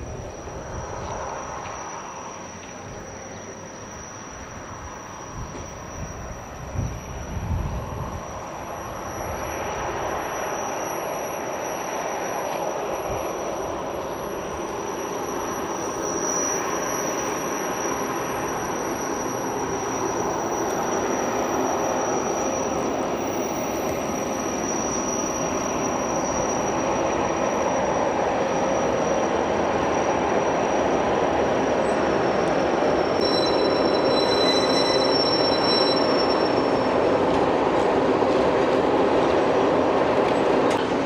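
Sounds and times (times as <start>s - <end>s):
train rolling over tracks: 0.0s - 41.0s
wheels squealing: 0.0s - 41.0s.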